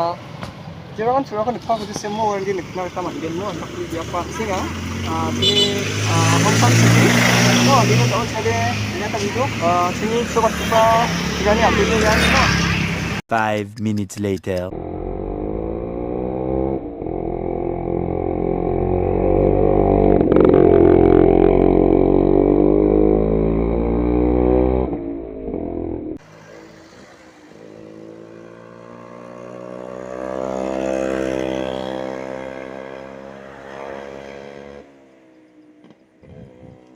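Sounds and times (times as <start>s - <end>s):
motorcycle engine running: 14.7s - 23.9s, 27.6s - 36.9s.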